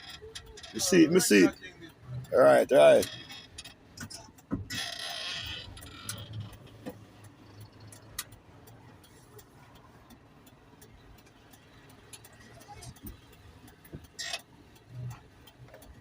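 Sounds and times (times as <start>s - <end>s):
light ticks and clicks: 0.0s - 16.0s.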